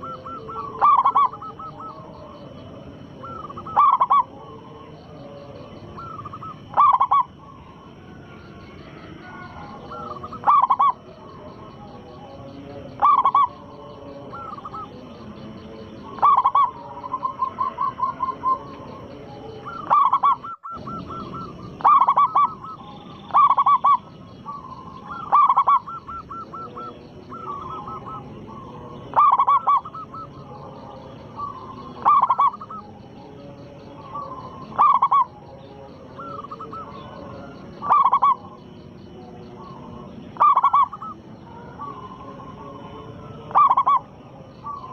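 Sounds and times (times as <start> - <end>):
dove cooing: 0.0 - 44.9.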